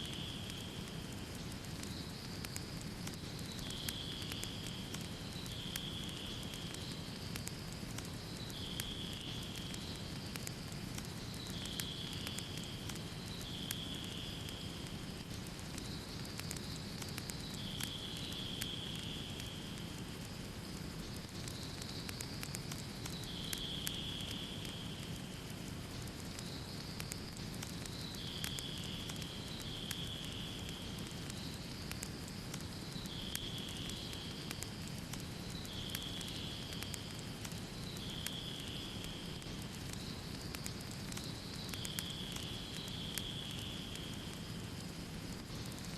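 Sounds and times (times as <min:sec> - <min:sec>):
faint high hiss: 0:00.0 - 0:45.9
wood fire crackling and popping: 0:00.0 - 0:45.9.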